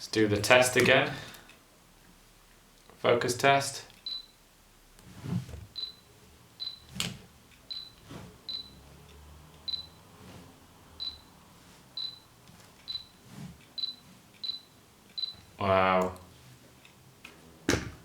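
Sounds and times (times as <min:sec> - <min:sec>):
camera focus beeps: 0:13.8 - 0:15.5.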